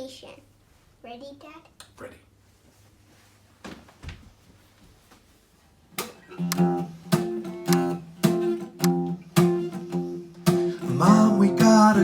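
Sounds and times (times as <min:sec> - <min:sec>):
acoustic guitar strumming: 0:06.1 - 0:12.0.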